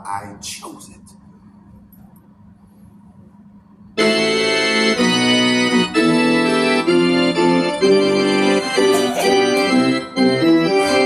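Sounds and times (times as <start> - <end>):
organ-like keyboard chords: 3.9 - 11.0.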